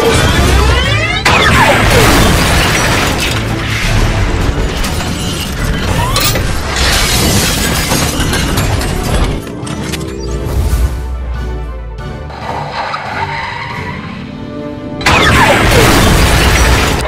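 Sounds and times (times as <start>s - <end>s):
booming explosions: 0.0s - 4.8s, 15.0s - 17.0s
crashing debris: 0.0s - 9.6s, 15.0s - 17.0s
background music: 0.0s - 17.0s
blaster zap: 15.0s - 17.0s.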